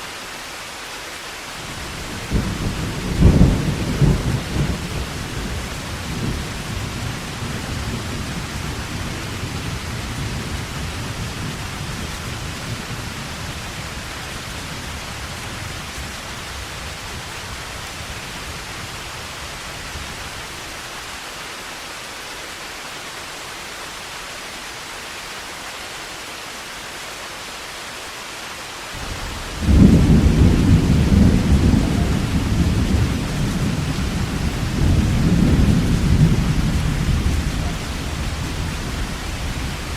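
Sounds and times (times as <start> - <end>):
heavy rain: 0.0 - 39.9
low thunder rumble: 1.7 - 13.6, 29.0 - 39.9
loud thunder clap: 29.0 - 39.9.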